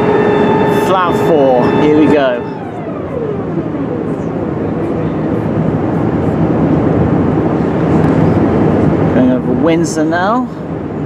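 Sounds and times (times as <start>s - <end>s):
airplane cabin rushing noise: 0.0s - 9.1s.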